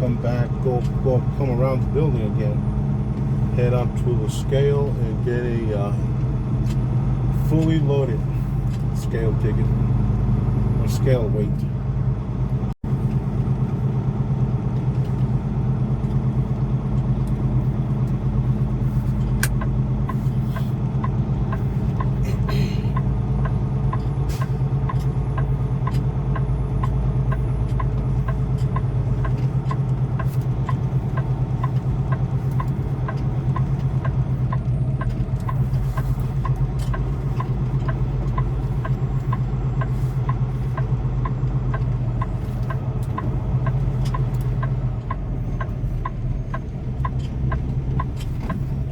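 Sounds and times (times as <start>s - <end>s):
diesel truck engine running: 0.0s - 48.9s
light ticking: 16.0s - 48.9s.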